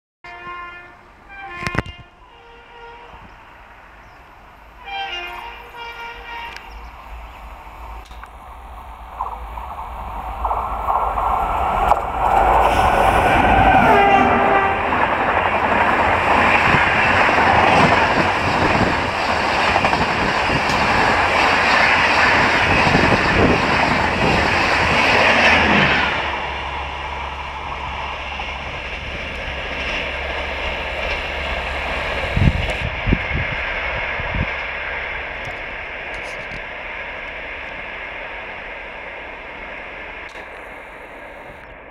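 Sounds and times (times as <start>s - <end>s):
train horn: 0.2s - 3.4s, 4.8s - 6.8s, 13.5s - 15.3s
train rumble: 0.3s - 41.9s
train wheel clatter: 9.1s - 26.5s, 27.6s - 33.6s, 35.3s - 37.9s.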